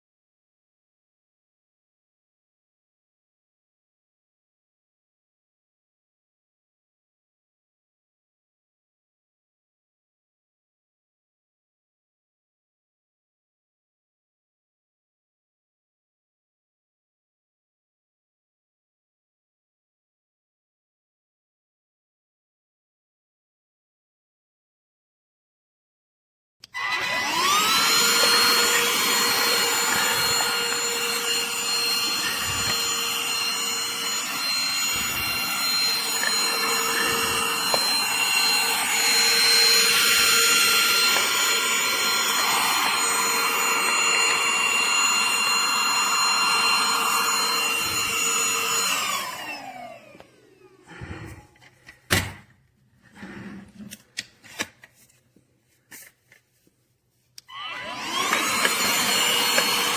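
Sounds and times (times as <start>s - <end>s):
handheld vacuum whining: 26.6s - 52.0s, 57.4s - 59.9s.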